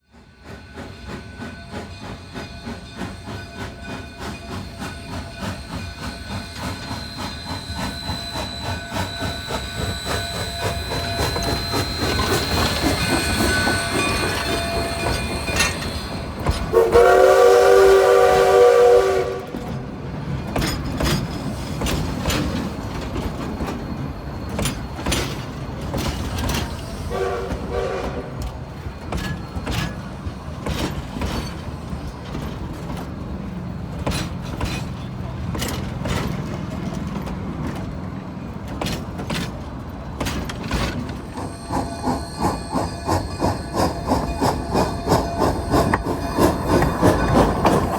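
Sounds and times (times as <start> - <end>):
steam locomotive chime whistle: 0.1 - 19.9, 26.1 - 30.4, 41.1 - 47.9
steam locomotive exhaust chuffs: 0.1 - 47.9.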